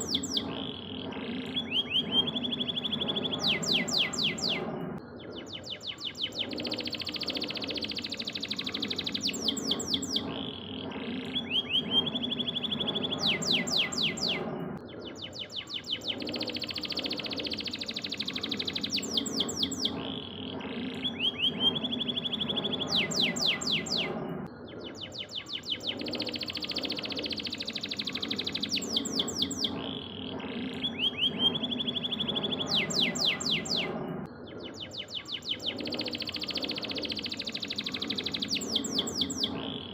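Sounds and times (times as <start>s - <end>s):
canary singing trills: 0.0s - 39.9s
steady low hum: 0.0s - 39.9s.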